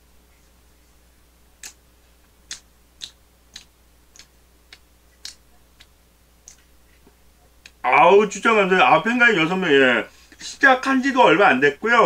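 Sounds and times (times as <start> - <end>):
wet mouth clicks of chewing: 2.5 - 6.7.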